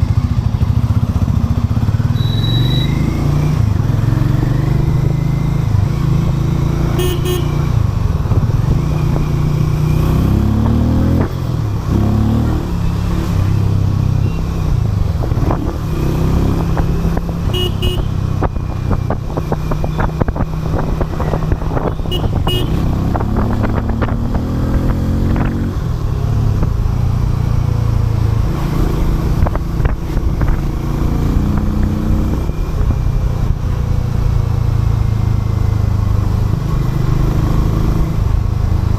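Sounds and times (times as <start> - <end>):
motorcycle engine revving: 0.0 - 38.9
short high horn toot: 7.0 - 7.6.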